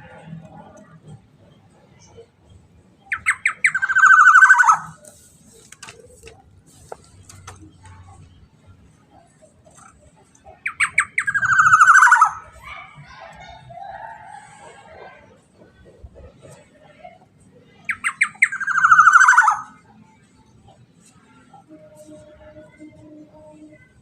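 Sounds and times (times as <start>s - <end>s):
oriole harsh rasping call: 3.2s - 5.0s, 10.6s - 12.6s.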